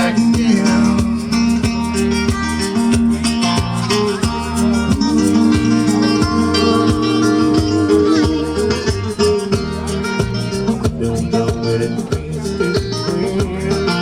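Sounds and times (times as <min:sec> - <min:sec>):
person singing: 0:00.0 - 0:01.7, 0:04.4 - 0:09.6, 0:10.8 - 0:14.0
live band playing: 0:00.0 - 0:14.0.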